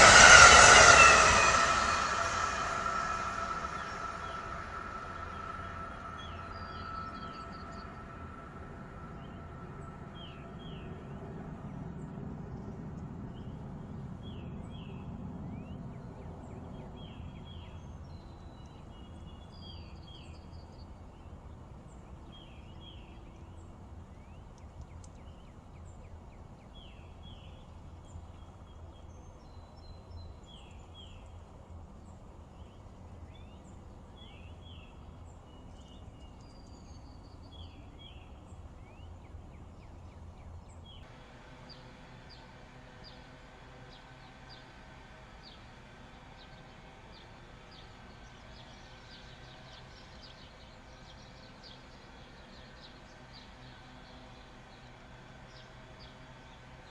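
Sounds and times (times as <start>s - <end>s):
birds chirping: 0.0s - 11.0s
low rumble: 0.0s - 12.8s
steady low hum: 0.0s - 13.9s.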